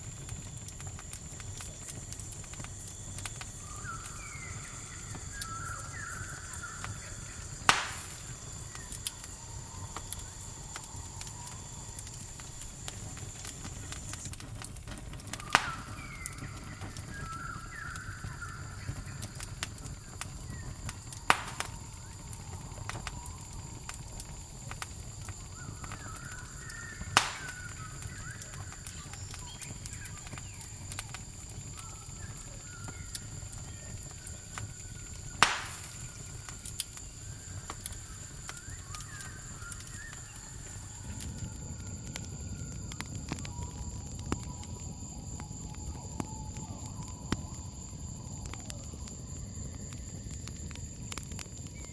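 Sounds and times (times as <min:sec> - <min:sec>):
campfire crackling and popping: 0:00.0 - 0:51.9
cricket trill: 0:00.0 - 0:51.9
warbling bird calls: 0:03.6 - 0:09.0, 0:15.4 - 0:22.5, 0:25.3 - 0:41.1.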